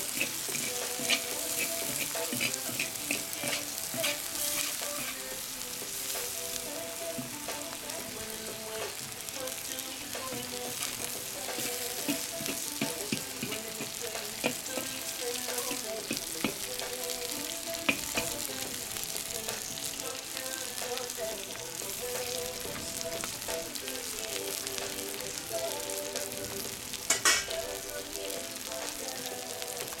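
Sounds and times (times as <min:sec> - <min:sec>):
metal skimmer stirring: 0:00.0 - 0:05.2
meat sizzling in hot oil: 0:00.0 - 0:30.0.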